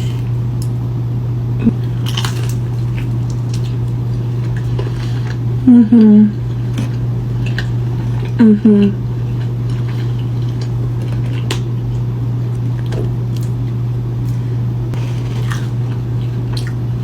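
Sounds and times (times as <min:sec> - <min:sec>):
steady low hum: 0:00.0 - 0:17.0
chewing and biting food: 0:01.7 - 0:05.6, 0:06.3 - 0:17.0.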